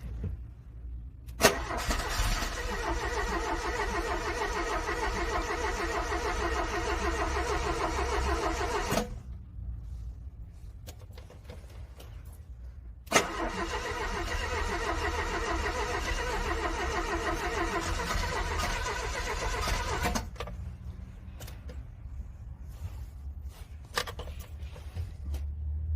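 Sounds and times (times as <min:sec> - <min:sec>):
car engine cranking: 0:01.2 - 0:09.3, 0:13.0 - 0:20.6.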